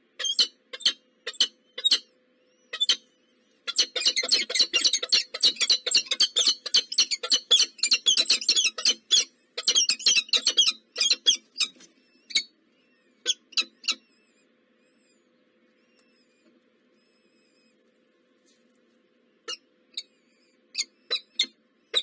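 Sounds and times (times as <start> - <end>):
nestlings chirping: 3.7 - 12.5, 19.5 - 22.0.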